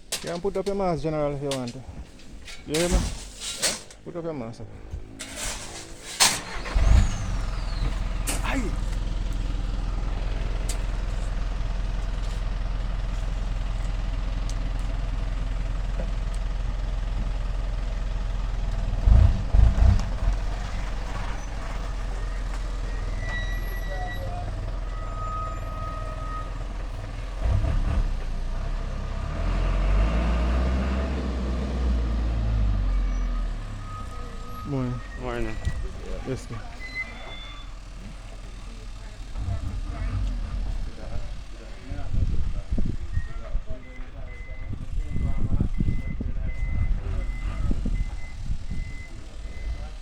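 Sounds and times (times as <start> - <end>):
truck engine running: 4.3 - 50.0.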